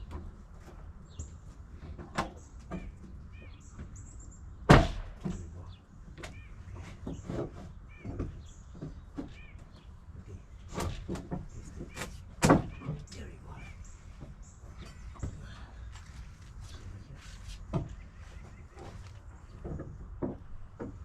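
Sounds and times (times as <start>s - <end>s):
birds chirping: 0.0s - 21.0s
hammer striking wooden boards: 4.7s - 5.4s.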